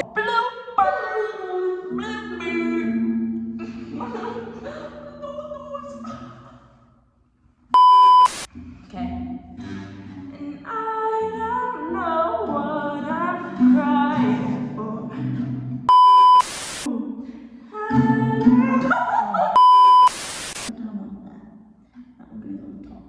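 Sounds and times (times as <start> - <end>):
voices singing in echoey room: 0.0 - 7.2, 8.5 - 15.9, 16.9 - 19.6
short high beep: 7.8 - 8.5, 15.9 - 16.9, 19.6 - 20.7
loud burst of hiss: 16.4 - 16.9, 20.1 - 20.7.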